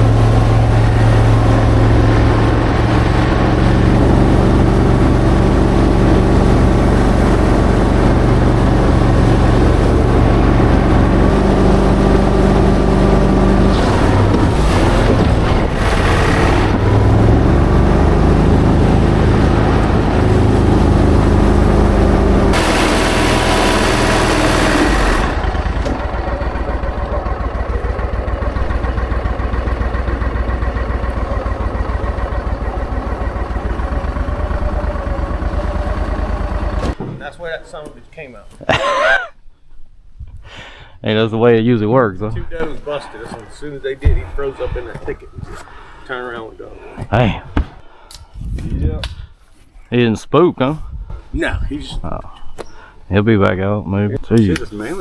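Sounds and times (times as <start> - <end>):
hissing burst: 0.0 - 27.2
vehicle engine running: 0.0 - 37.0.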